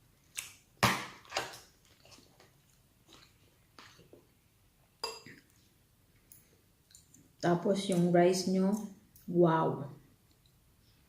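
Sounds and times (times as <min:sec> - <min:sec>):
person chewing food: 0:01.2 - 0:04.4, 0:05.2 - 0:07.4.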